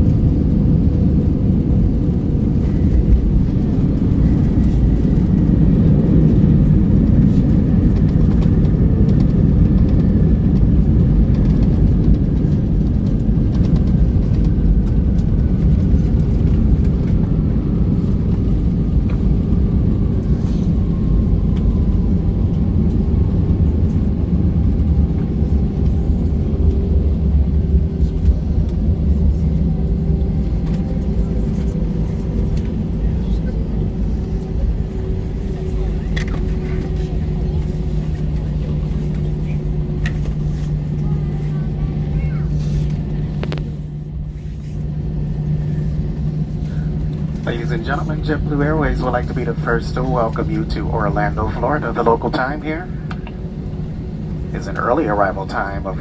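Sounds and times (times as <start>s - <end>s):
jet engines spooling down: 44.8s - 56.0s.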